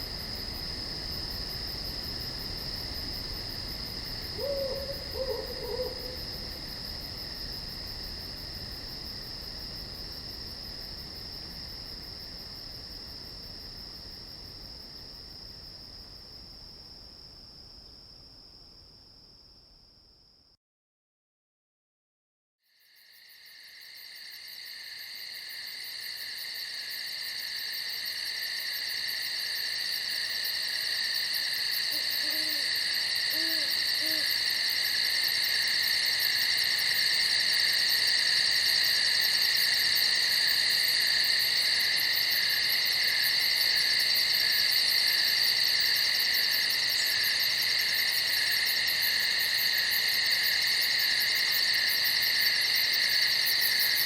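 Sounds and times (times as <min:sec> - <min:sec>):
crickets chirping: 0:00.0 - 0:20.6, 0:22.7 - 0:54.0
soft low hoots: 0:04.4 - 0:06.2, 0:31.9 - 0:32.7, 0:33.3 - 0:34.4.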